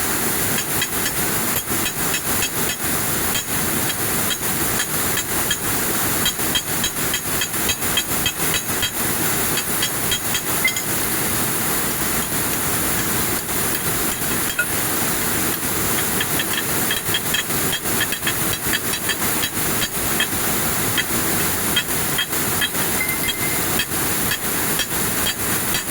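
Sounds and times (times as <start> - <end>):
weaving looms clattering: 15.4 - 25.5.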